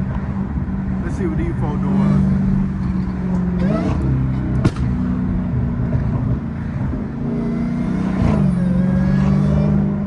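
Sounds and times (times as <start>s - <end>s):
sharp crack: 4.6s - 5.0s.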